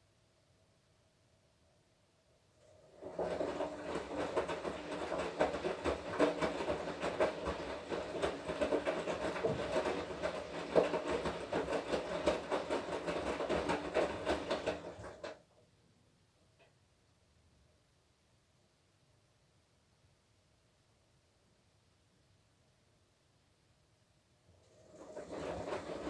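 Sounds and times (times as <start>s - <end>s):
clatter of tumbling wash load: 2.6s - 15.4s, 24.6s - 26.0s
washing machine motor hum: 2.6s - 15.4s, 24.5s - 26.0s.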